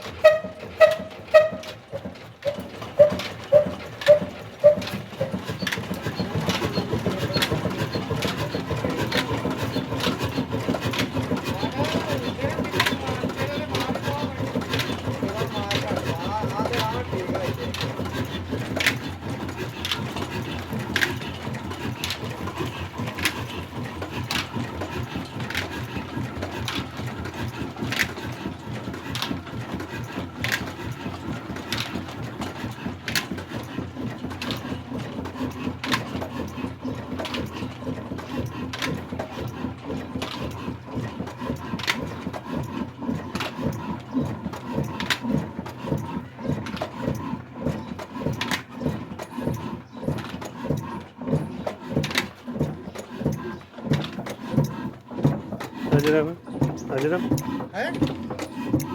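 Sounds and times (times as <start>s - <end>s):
single-cylinder diesel engine knocking: 0.0s - 58.9s.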